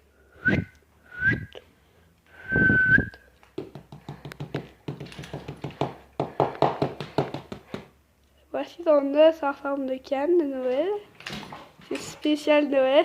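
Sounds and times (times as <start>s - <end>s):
person whistling: 0.3s - 1.6s, 2.4s - 3.3s
quick irregular taps and clicks: 3.4s - 7.9s.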